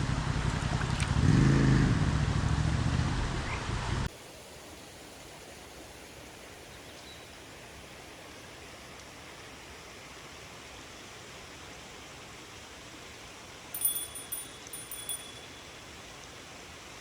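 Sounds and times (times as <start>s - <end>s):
faint outdoor hiss: 4.1s - 17.0s
small metal chime ringing: 13.8s - 15.9s.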